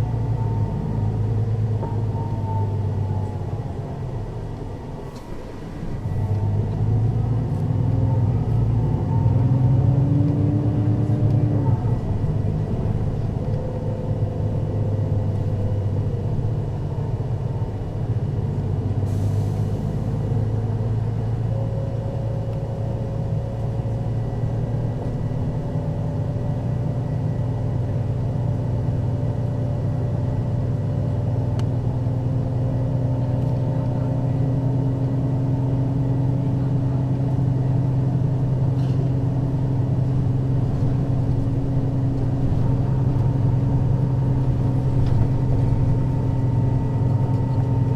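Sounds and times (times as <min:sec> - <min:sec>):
bus diesel engine running: 0:00.0 - 0:47.9.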